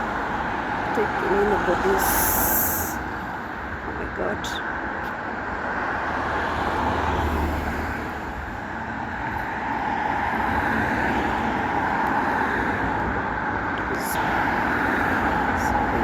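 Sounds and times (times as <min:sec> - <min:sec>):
cars passing: 0:00.0 - 0:16.0
vehicle rumbling by: 0:05.2 - 0:16.0.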